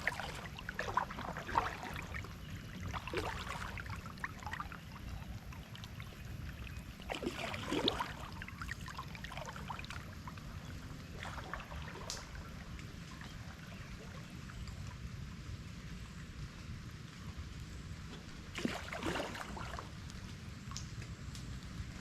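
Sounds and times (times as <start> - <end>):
kayak paddle splashing: 0.0 - 14.6, 18.5 - 20.0
water dripping off paddle: 0.0 - 14.8
low steady rumble: 0.0 - 22.0.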